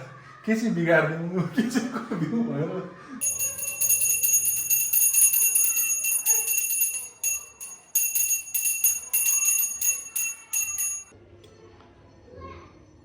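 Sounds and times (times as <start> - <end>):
handheld bell rung rapidly: 3.2 - 11.1.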